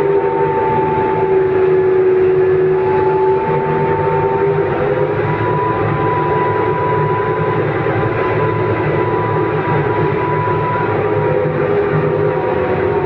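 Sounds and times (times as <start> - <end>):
vehicle engine droning whine: 0.0 - 13.0.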